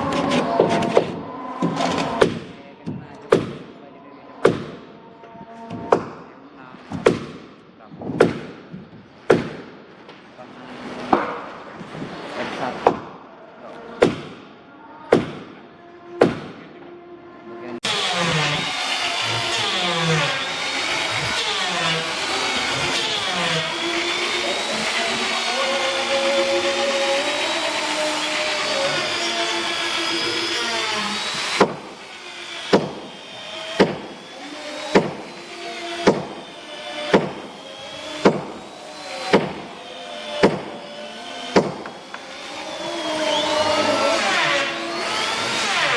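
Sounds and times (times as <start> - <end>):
power tool running: 0.0 - 2.5, 17.8 - 45.9.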